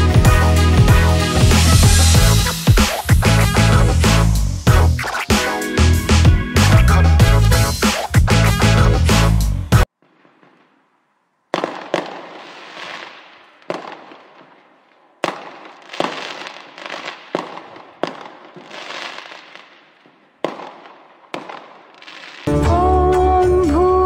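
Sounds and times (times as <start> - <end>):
fireworks bangs: 9.8 - 22.5.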